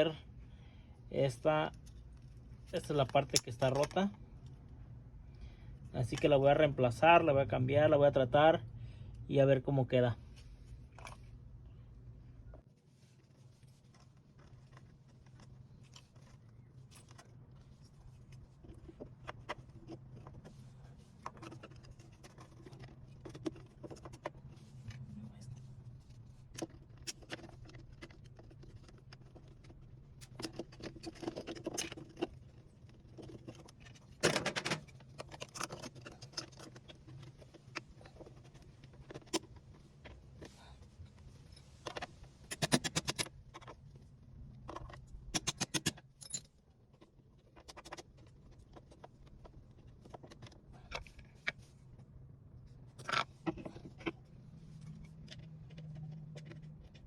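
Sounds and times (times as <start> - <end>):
low steady hum: 0.0 - 57.0
tools clicking and knocking: 26.6 - 40.2, 41.6 - 43.8, 44.6 - 51.6.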